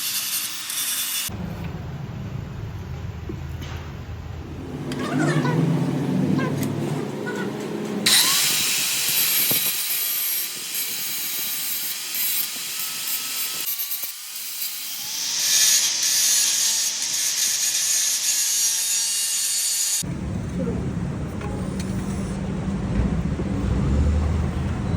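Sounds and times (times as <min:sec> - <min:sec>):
power tool grinding metal: 0:00.0 - 0:01.3, 0:04.7 - 0:20.1.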